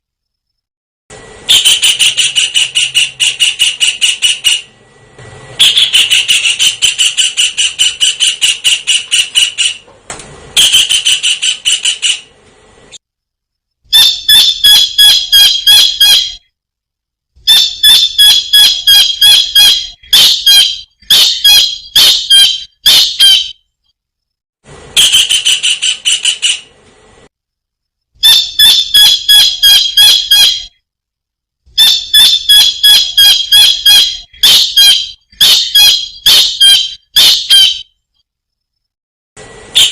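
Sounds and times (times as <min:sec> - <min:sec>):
kingfisher calling: 0:05.6 - 0:09.8.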